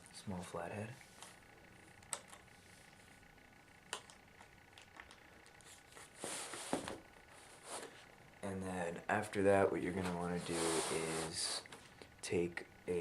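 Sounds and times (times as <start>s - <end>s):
scraping rustle: 9.9s - 11.8s.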